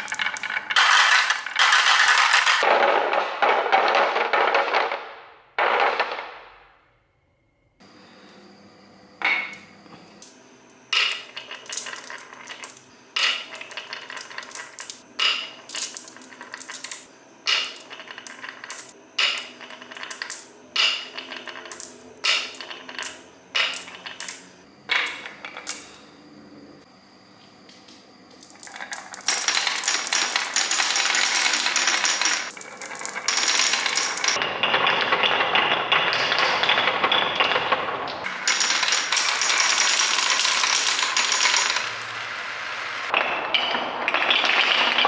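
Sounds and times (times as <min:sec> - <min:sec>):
small hard objects clinking: 0:00.0 - 0:05.0, 0:11.0 - 0:25.9, 0:28.3 - 0:37.6, 0:38.2 - 0:42.2.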